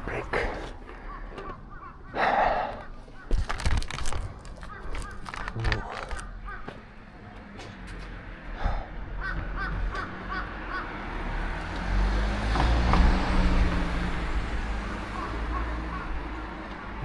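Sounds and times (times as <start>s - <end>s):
bird calls: 0.0s - 11.2s, 13.0s - 17.0s
vehicle passing: 4.6s - 17.0s.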